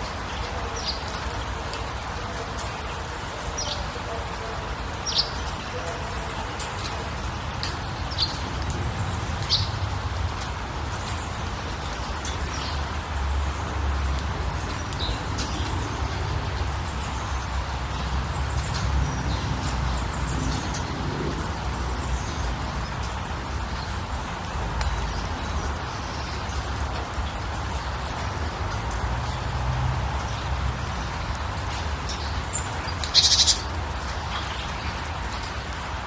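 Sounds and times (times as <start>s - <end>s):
low rumbling background noise: 0.0s - 36.0s.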